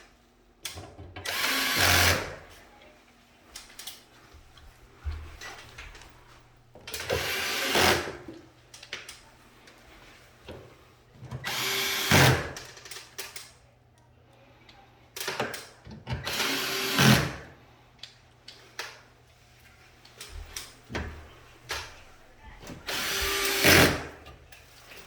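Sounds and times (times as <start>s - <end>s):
cordless drill running: 1.2s - 2.4s, 7.0s - 8.2s, 11.4s - 12.5s, 16.2s - 17.4s, 22.8s - 24.2s.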